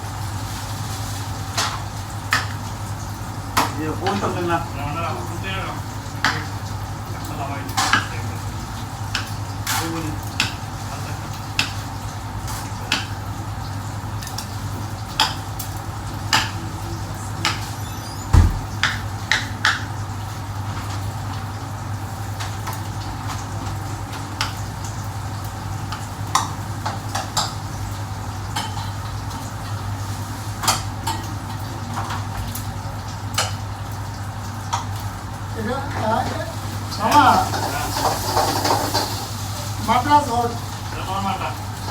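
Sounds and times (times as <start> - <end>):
heavy thump: 18.3 - 18.8
pots and pans clinking: 36.9 - 39.7.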